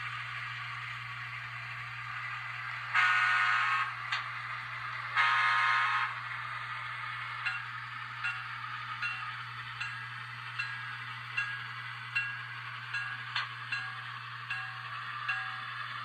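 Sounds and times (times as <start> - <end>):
model train horn blasts: 2.9 - 4.0, 5.2 - 6.2.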